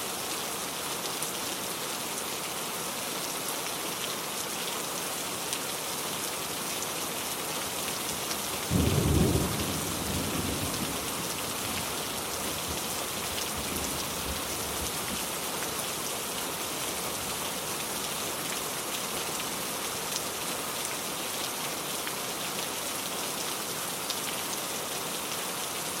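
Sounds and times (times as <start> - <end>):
heavy rain hissing: 6.4 - 20.7
thunder clap rumbling: 8.7 - 11.4.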